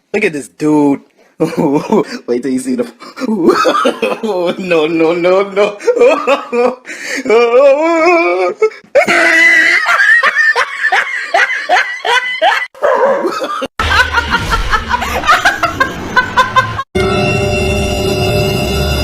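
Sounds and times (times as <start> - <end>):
person laughing hard: 3.2 - 4.6, 5.6 - 16.9.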